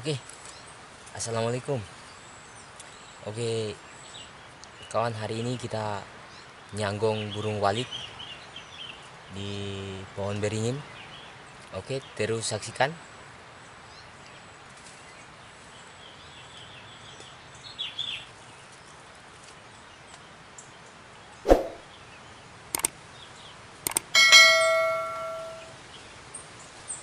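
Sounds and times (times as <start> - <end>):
sharp clicks: 22.8 - 23.0, 23.9 - 24.1
bright metallic ring: 24.2 - 25.8.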